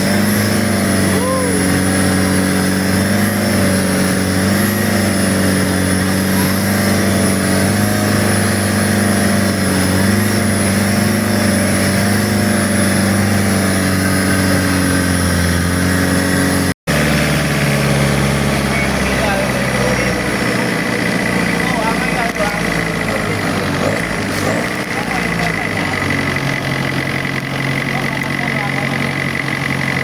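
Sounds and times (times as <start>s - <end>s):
continuous rush of noise: 0.0s - 16.2s
boat engine running: 0.0s - 30.0s.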